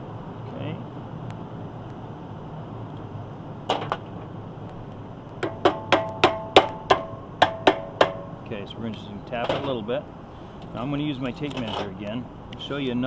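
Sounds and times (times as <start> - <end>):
steady low hum: 0.0 - 13.0
ringing metallic taps: 5.4 - 8.4.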